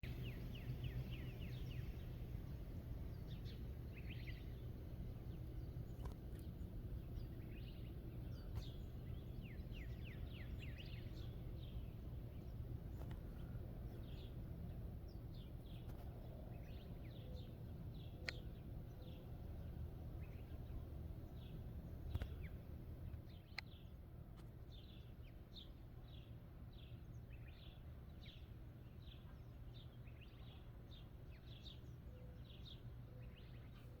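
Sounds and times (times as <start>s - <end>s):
small bird chirping: 0.0s - 23.9s
low background rumble: 0.0s - 34.0s.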